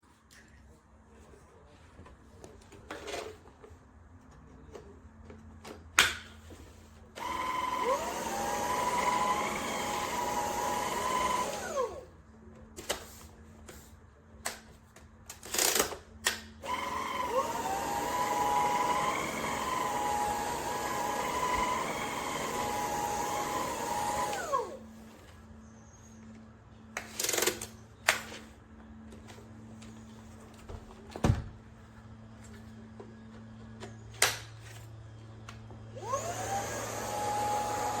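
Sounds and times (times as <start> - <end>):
vacuum cleaner motor whining: 7.2 - 12.0, 16.6 - 25.0, 35.9 - 38.0.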